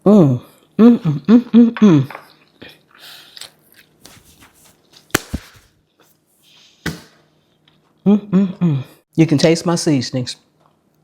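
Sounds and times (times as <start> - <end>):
person murmuring: 0.1 - 2.2
soft chewing: 2.3 - 4.2.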